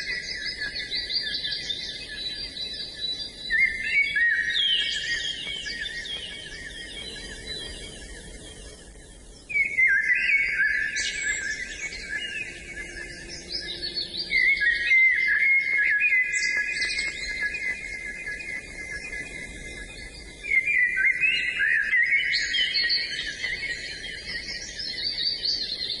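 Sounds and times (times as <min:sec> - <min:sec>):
songbirds chirping and trilling: 0:00.0 - 0:26.0.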